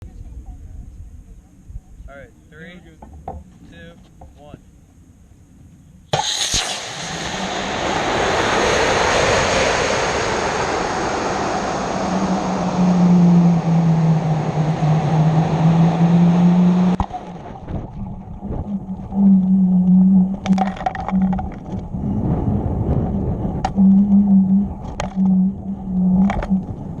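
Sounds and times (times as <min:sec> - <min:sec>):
steady low hum: 0:00.0 - 0:27.0
sharp pop: 0:06.1 - 0:08.0, 0:16.9 - 0:17.4
air rushing past camera: 0:06.1 - 0:27.0
wind buffeting: 0:06.7 - 0:27.0.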